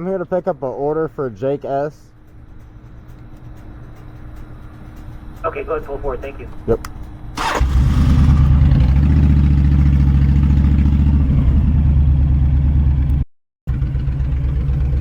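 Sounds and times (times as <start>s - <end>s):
motorcycle engine running: 7.4s - 15.0s.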